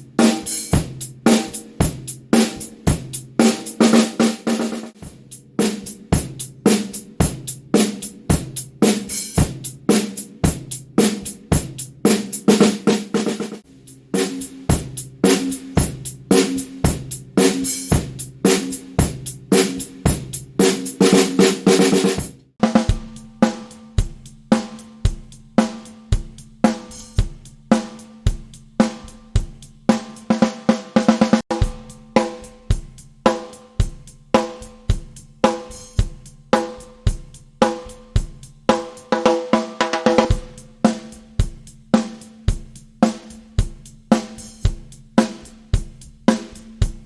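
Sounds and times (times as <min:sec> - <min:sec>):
drum kit playing a groove: 0:00.0 - 0:47.0.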